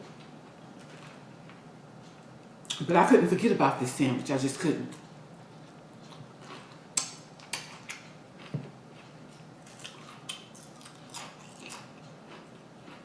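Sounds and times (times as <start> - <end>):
person chewing crunchy food: 5.6 - 13.0.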